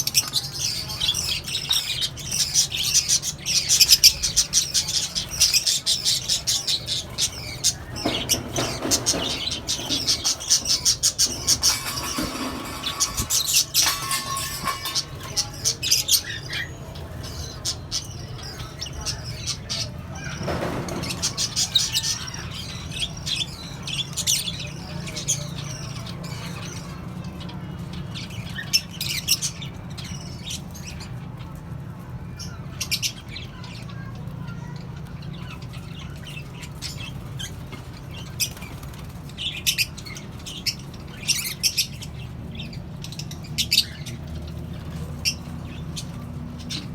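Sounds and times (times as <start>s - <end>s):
parrots chirping and squawking: 0.0s - 27.0s.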